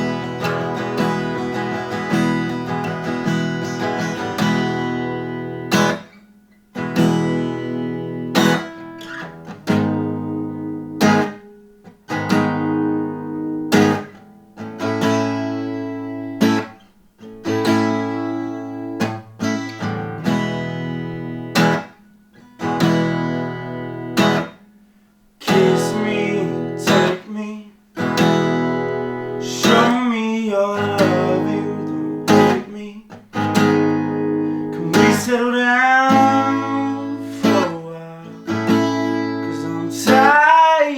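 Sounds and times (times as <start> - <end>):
acoustic guitar strumming: 0.0 - 40.9
person singing: 25.4 - 27.8, 29.0 - 33.2, 34.0 - 40.9.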